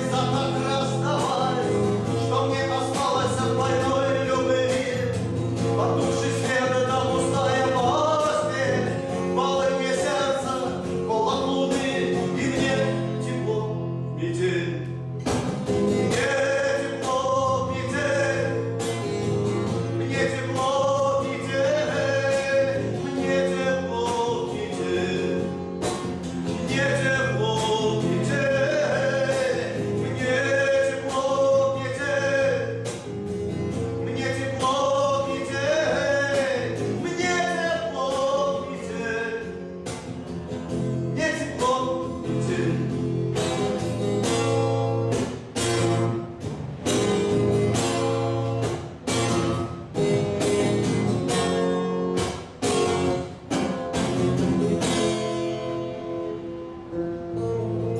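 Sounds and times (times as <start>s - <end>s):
man singing: 0.0s - 45.2s
strummed acoustic guitar: 0.0s - 57.9s.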